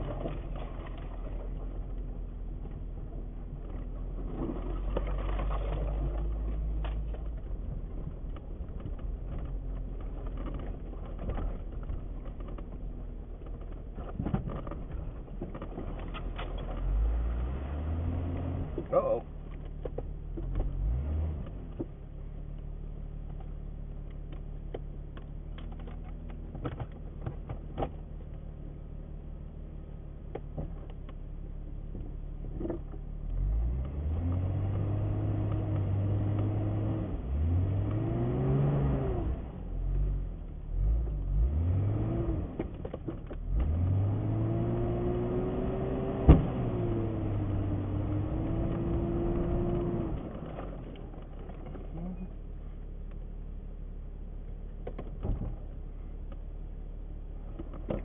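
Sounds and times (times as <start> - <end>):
engine idling and revving: 0.0 - 58.0.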